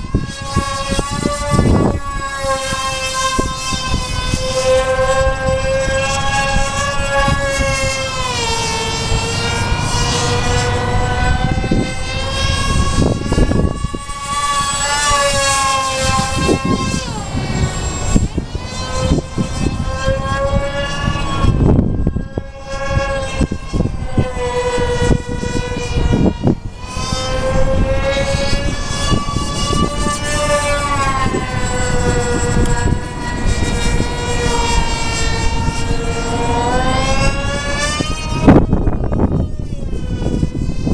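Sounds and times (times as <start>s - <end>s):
electric motors whining: 0.0s - 40.9s.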